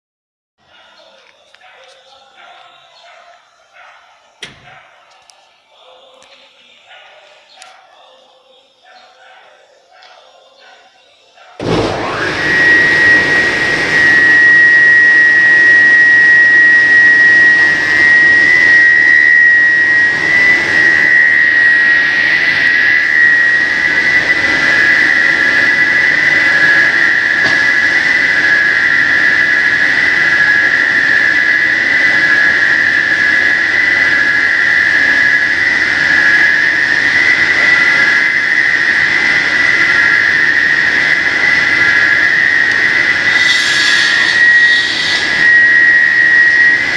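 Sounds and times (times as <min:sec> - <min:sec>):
cutting machine high-pitched whine: 0:03.5 - 0:06.2, 0:10.0 - 0:46.9
hiss: 0:43.2 - 0:46.2.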